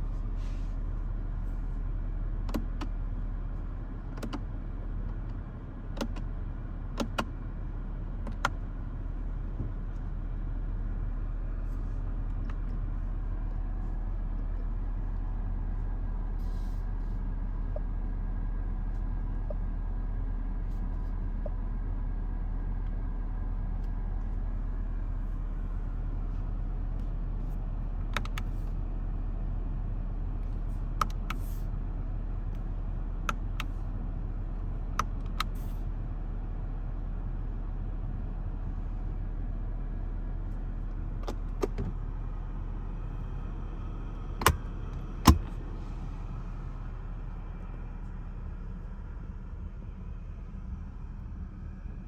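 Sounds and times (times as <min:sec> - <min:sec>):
car engine low rumble: 0:00.0 - 0:52.0
sharp clicks: 0:44.4 - 0:44.7.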